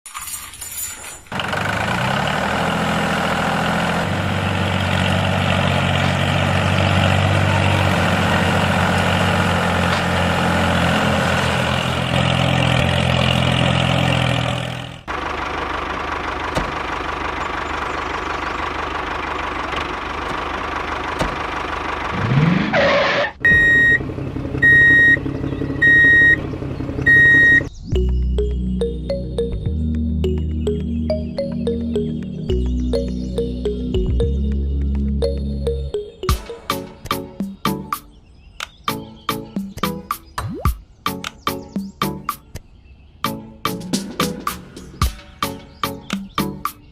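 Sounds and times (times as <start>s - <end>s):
engine running: 1.3s - 36.9s.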